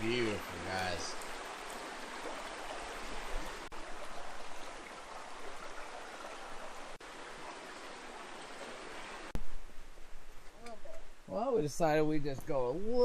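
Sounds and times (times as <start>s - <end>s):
river water flowing: 0.0s - 9.4s.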